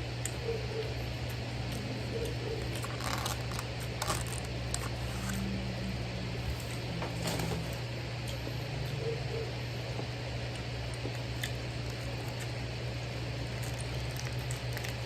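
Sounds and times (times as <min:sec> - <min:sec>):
steady low hum: 0:00.0 - 0:15.0
handling noises: 0:06.4 - 0:08.0
chewing smacks: 0:09.9 - 0:15.0.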